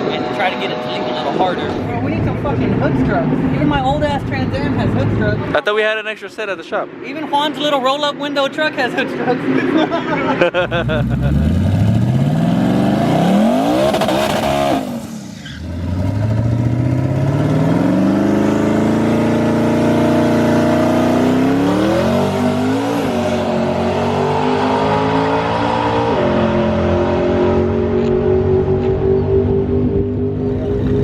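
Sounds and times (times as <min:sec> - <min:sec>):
car engine revving: 0:09.4 - 0:31.0.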